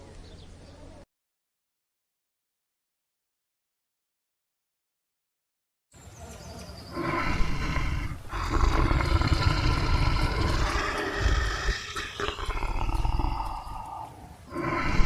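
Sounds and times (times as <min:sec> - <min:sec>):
large animal calling: 0:06.9 - 0:15.0.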